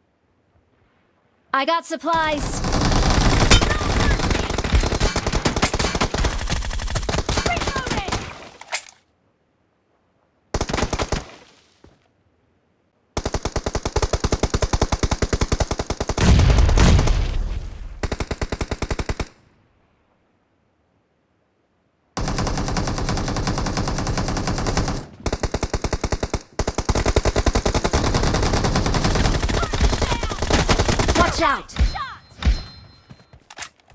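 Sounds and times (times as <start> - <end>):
video game automatic gunfire: 2.2 - 8.3, 22.2 - 31.6.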